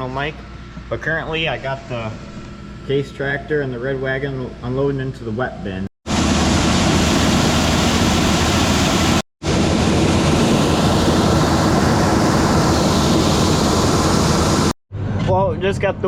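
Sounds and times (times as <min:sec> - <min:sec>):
auger running: 0:06.1 - 0:14.7.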